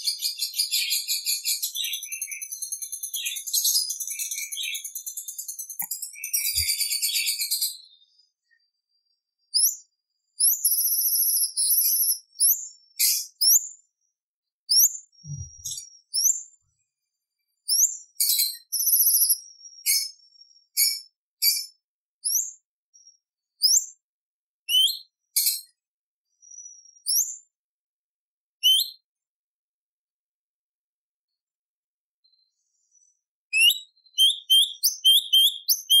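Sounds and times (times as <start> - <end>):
bird singing whistled notes: 0.0 - 8.6, 9.5 - 13.7, 14.7 - 16.5, 17.7 - 22.6, 23.6 - 24.0, 24.7 - 25.7, 26.5 - 27.5, 28.6 - 29.1, 32.2 - 36.0.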